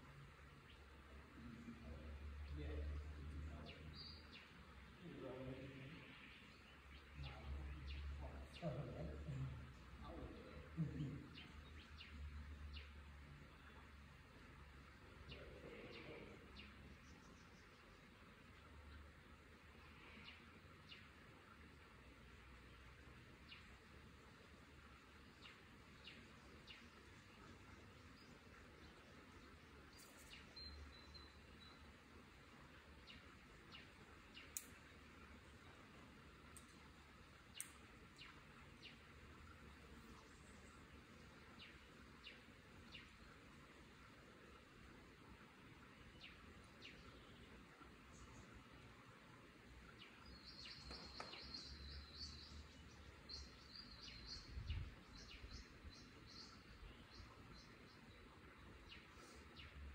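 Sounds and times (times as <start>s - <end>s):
faint bird chirping: 0.0s - 59.9s
faint bird chirps: 25.3s - 44.7s, 49.9s - 59.9s.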